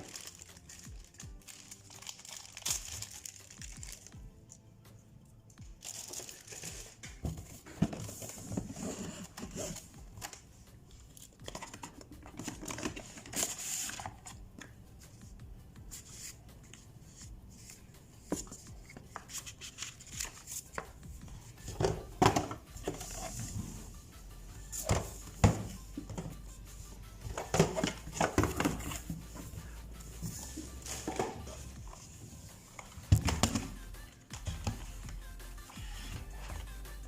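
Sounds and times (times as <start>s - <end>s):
wrapping crinkling and tearing: 0.0s - 4.2s, 5.8s - 7.0s.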